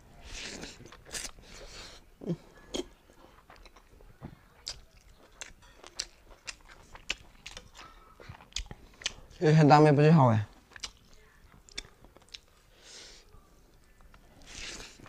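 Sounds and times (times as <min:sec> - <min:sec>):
person chewing: 0:00.2 - 0:04.0, 0:04.6 - 0:09.4, 0:10.6 - 0:12.6, 0:14.1 - 0:15.0.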